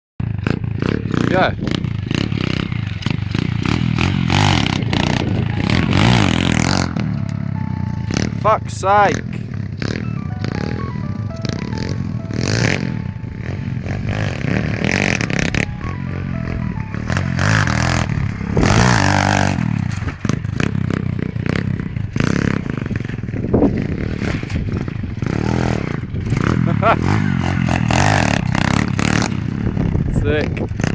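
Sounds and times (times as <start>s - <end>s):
engine clatter: 0.2s - 10.0s, 13.4s - 30.9s
small engine revving hard: 0.4s - 7.1s, 17.1s - 30.2s.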